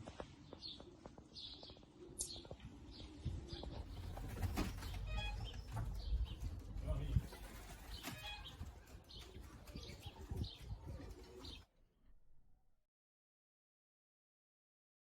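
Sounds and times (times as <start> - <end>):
pigeons cooing and chirping: 0.4 - 11.6.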